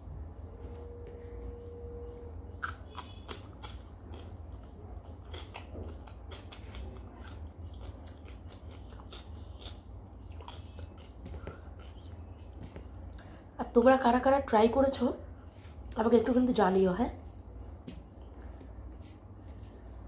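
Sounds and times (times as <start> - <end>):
low steady hum: 0.0 - 20.0
cucumber crunching: 2.5 - 13.0
wet chewing clicks: 2.5 - 13.3.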